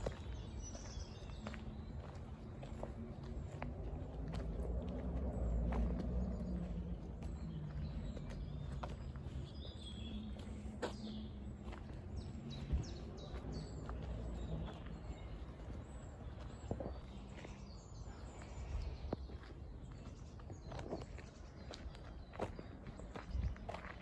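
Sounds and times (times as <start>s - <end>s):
bird chirping: 0.0s - 3.6s
footsteps on path: 0.0s - 24.0s
steady low rumble: 0.0s - 24.0s.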